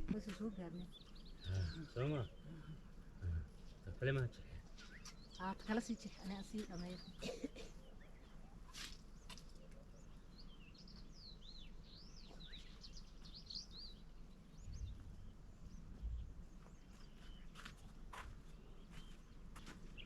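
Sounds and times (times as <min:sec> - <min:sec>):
outdoor background noise: 0:00.0 - 0:20.0
small birds twittering: 0:00.0 - 0:20.0
dull low thuds: 0:14.6 - 0:16.8.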